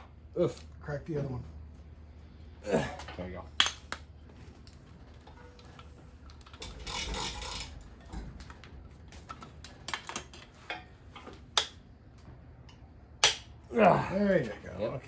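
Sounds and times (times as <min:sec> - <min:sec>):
metal scraping rustle: 0:04.8 - 0:08.4.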